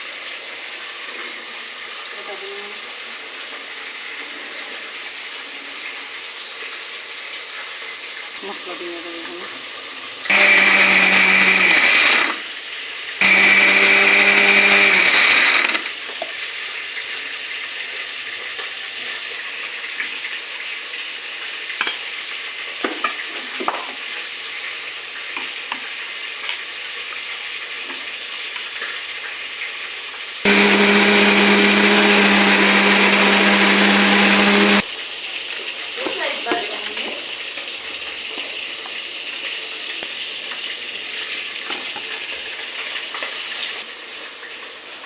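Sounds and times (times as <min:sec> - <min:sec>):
oil sizzling in a pan: 0:00.0 - 0:10.3, 0:12.4 - 0:13.2, 0:15.9 - 0:30.5, 0:34.8 - 0:45.0
electric mixer grinder: 0:10.3 - 0:12.5, 0:13.2 - 0:16.0, 0:30.5 - 0:34.9.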